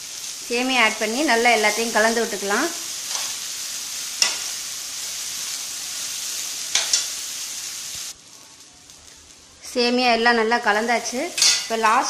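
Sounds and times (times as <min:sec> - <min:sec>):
oil sizzling in a pan: 0:00.0 - 0:12.0
metal spatula clinking on pan: 0:06.7 - 0:07.1, 0:11.4 - 0:11.8.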